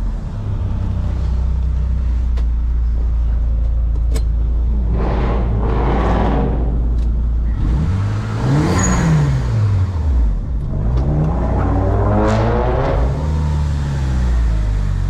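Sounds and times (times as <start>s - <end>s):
car engine revving: 4.4s - 15.0s.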